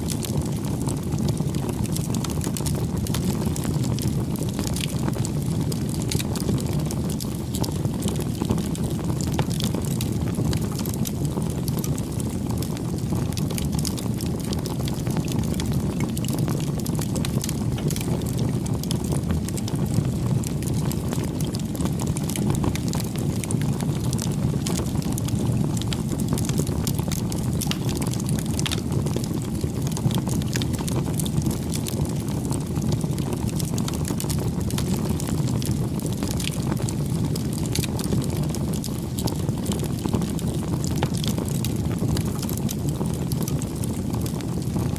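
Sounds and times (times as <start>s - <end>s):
burning wood crackling and popping: 0.0s - 44.9s
campfire low rush: 0.0s - 44.9s.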